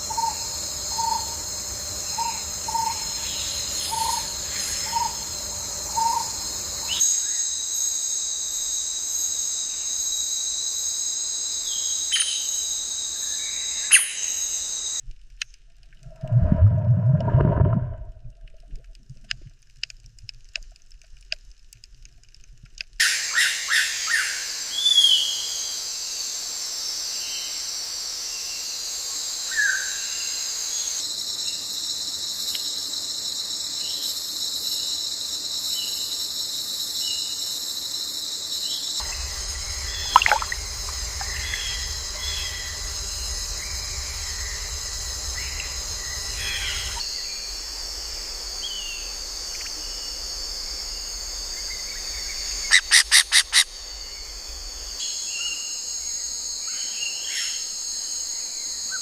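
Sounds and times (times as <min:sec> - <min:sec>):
high insect chorus: 0:00.0 - 0:15.0, 0:23.0 - 0:59.0
low rumble: 0:16.0 - 0:19.1, 0:39.0 - 0:52.7, 0:53.6 - 0:55.0.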